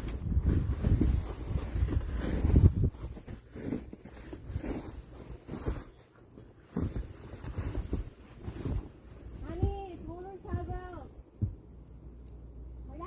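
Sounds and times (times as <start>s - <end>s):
shovel scraping heavy snow: 0.5s - 5.9s.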